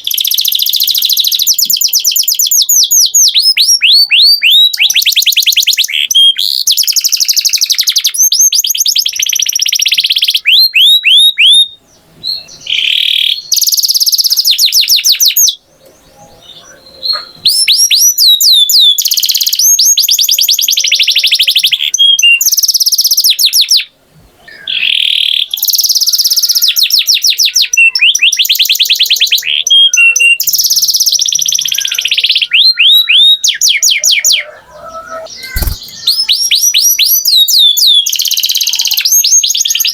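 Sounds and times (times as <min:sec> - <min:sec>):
canary singing: 0:00.0 - 0:23.9, 0:24.5 - 0:39.9.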